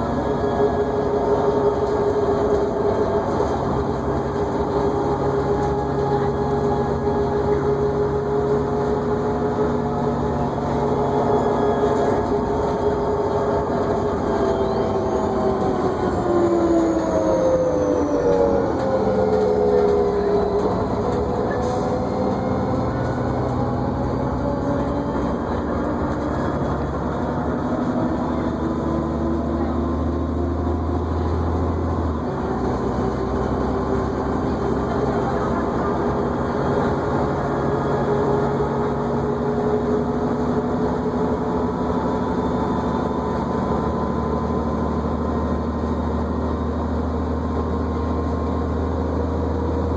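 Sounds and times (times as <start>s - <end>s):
bus engine drone: 0.0s - 49.9s
bus whine: 0.0s - 49.9s.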